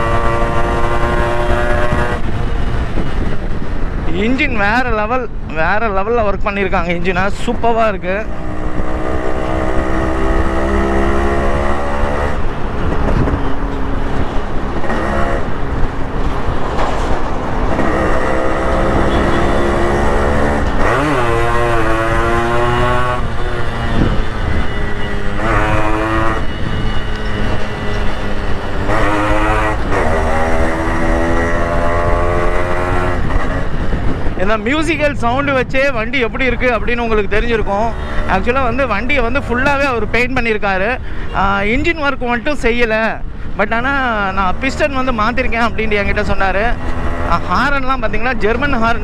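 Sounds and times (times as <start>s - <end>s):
two-stroke motorcycle engine revving: 0.0s - 3.2s, 8.2s - 12.5s, 14.8s - 15.8s, 17.6s - 34.4s, 35.2s - 40.3s, 44.1s - 49.0s.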